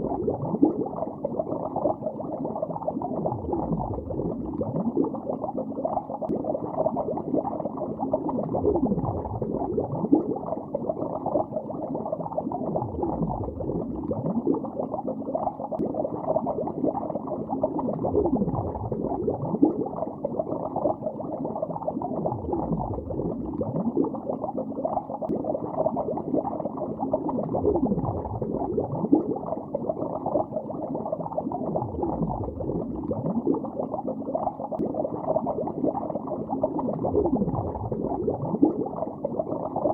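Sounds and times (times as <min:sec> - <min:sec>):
underwater bubbling: 0:00.0 - 0:39.9.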